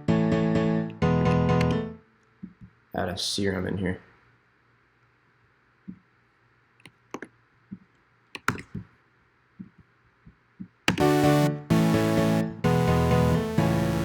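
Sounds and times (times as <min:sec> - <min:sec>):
computer mouse clicks: 0:08.4 - 0:08.9, 0:10.6 - 0:11.0
house music loop: 0:11.0 - 0:14.0.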